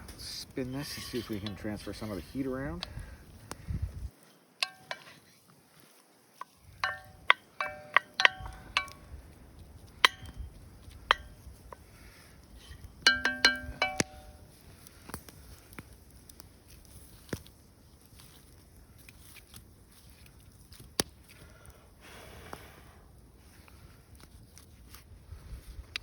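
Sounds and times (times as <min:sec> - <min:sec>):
metal clinking on cast iron pan: 0:04.6 - 0:05.2, 0:06.6 - 0:09.2, 0:09.9 - 0:11.6, 0:12.7 - 0:14.6.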